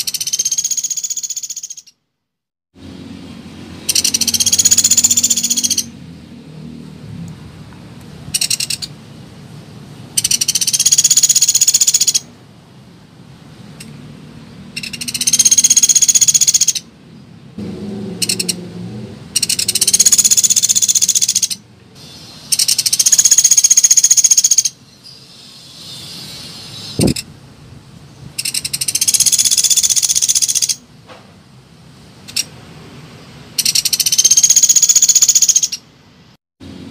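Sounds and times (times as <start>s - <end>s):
woodpecker rattling trills: 0.0s - 2.0s, 3.8s - 5.9s, 8.4s - 8.9s, 10.2s - 12.3s, 14.8s - 16.9s, 18.2s - 18.6s, 19.4s - 21.6s, 22.5s - 24.8s, 28.4s - 30.8s, 33.6s - 35.8s.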